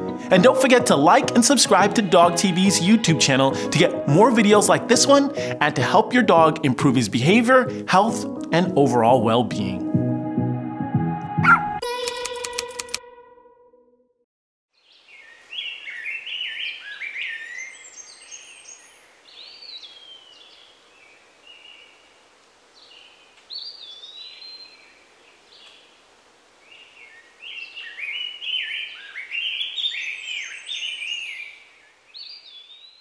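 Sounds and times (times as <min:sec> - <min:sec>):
faint outdoor hiss: 0:14.7 - 0:33.0
songbird singing: 0:14.7 - 0:33.0.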